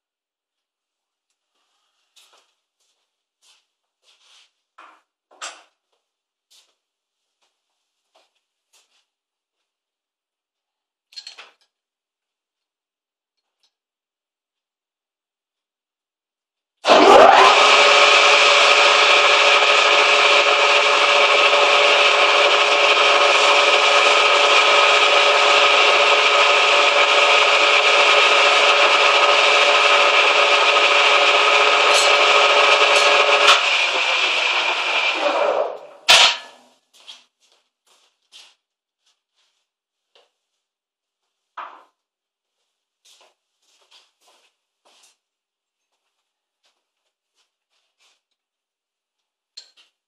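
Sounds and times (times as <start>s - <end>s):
lathe cutting noise: 16.8s - 36.3s
steady machine tones: 16.9s - 36.1s.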